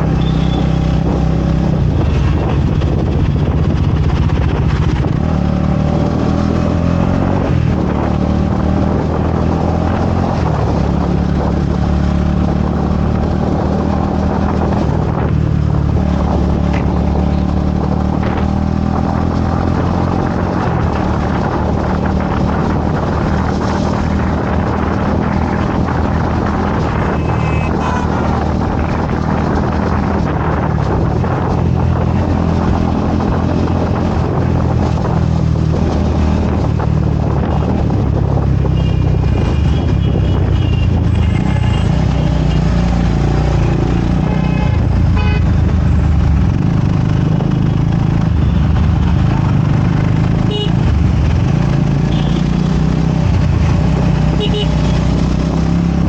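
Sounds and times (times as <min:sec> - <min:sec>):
motorcycle engine running: 0:00.0 - 0:06.7, 0:10.1 - 0:56.0
vehicle horns: 0:00.2 - 0:00.8, 0:27.1 - 0:28.2, 0:38.8 - 0:42.7, 0:44.2 - 0:45.5, 0:50.5 - 0:50.8, 0:52.1 - 0:52.5, 0:54.4 - 0:55.1.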